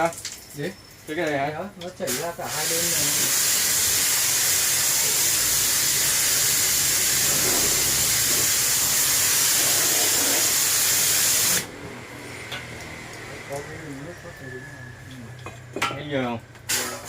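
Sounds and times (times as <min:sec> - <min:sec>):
water spray jet hissing: 0:02.1 - 0:11.7, 0:16.7 - 0:17.0.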